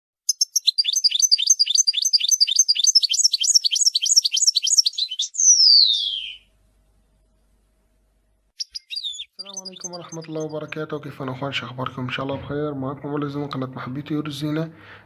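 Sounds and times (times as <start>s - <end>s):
lovebirds chirping: 0.2s - 6.5s, 8.6s - 11.4s
long falling bird whistle: 0.3s - 6.5s, 8.6s - 10.4s.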